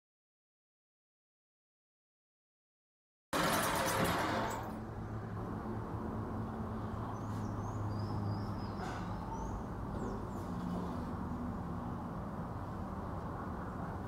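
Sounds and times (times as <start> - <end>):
small birds chirping: 6.8 - 11.1.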